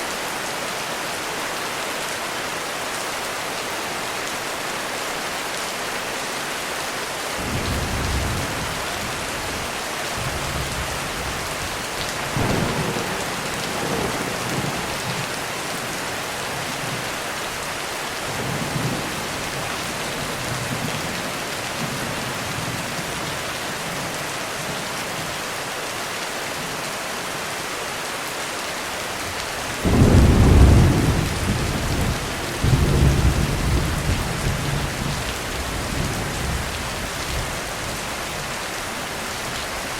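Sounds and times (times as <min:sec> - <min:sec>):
heavy rain on a roof: 0:00.0 - 0:39.9
thunder rumbling: 0:07.4 - 0:16.6, 0:29.8 - 0:37.5.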